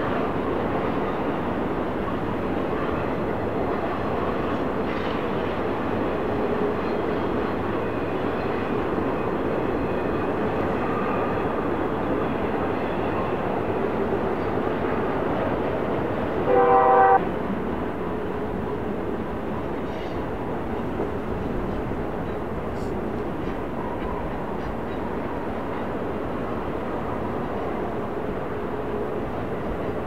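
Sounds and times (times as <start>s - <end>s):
freight train wheels rumbling: 0.0s - 30.0s
train horn blast: 16.4s - 17.3s.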